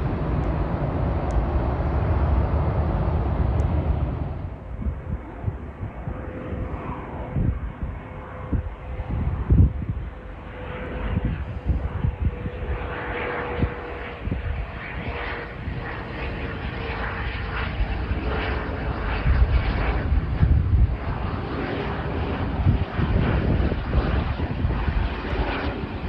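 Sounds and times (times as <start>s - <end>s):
jet engines passing: 0.0s - 26.0s
wind buffeting microphone: 0.0s - 26.0s.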